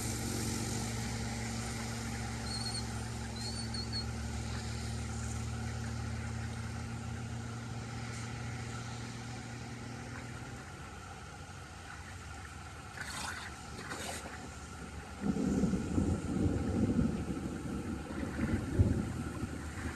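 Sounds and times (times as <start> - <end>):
low steady hum: 0.0 - 19.9
water rushing through drain: 11.8 - 19.9.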